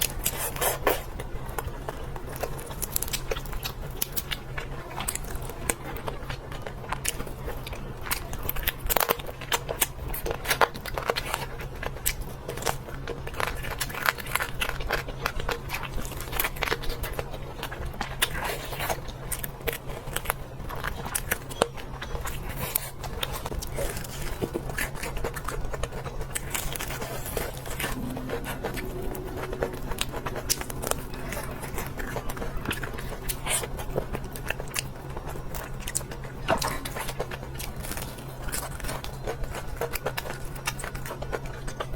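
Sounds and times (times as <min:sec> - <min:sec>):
chewing crisp food: 0:00.0 - 0:41.9
low hum: 0:26.1 - 0:36.4.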